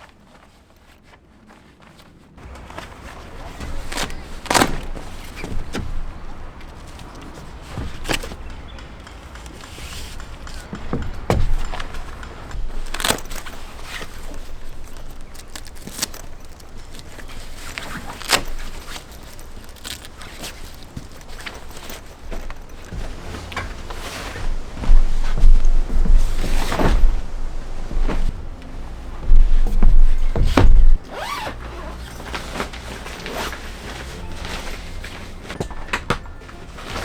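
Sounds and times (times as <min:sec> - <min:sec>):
sharp knocks and clicks: 0:03.9 - 0:28.4.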